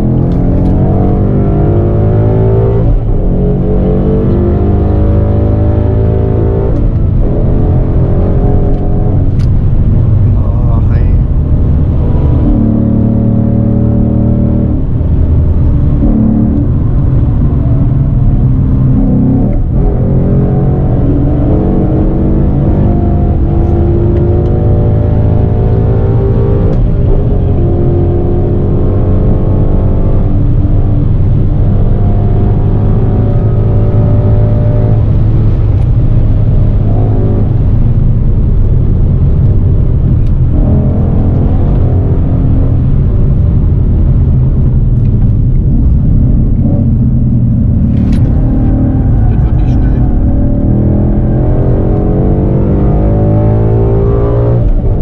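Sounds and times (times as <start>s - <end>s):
car engine accelerating hard: 0.0s - 55.0s.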